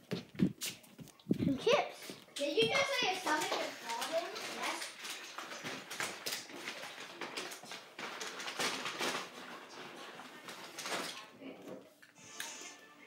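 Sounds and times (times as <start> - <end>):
rustling and clicking handling: 2.1 - 12.2.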